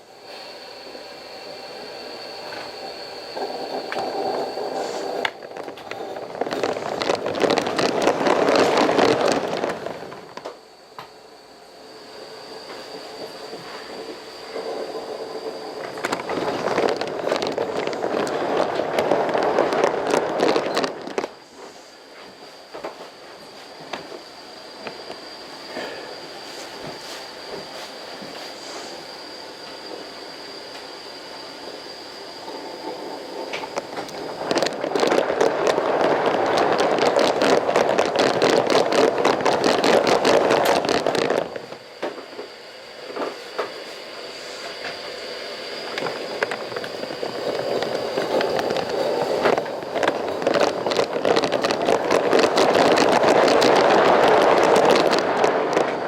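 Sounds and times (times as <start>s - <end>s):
steam locomotive releasing steam: 0.0s - 6.2s, 24.4s - 35.0s, 41.7s - 49.9s
steam locomotive exhaust beats: 0.0s - 11.3s
steady steam hiss: 0.0s - 56.0s.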